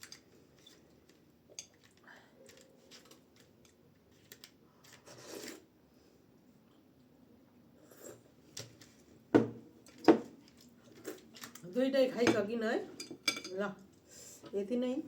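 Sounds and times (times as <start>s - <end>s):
utensils clinking against dish: 12.3s - 13.7s.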